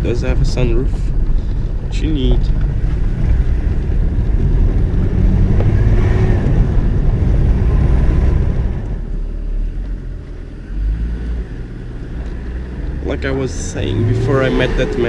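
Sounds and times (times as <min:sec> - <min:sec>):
diesel engine rumble: 0:00.0 - 0:15.0
road and tyre noise: 0:00.0 - 0:15.0.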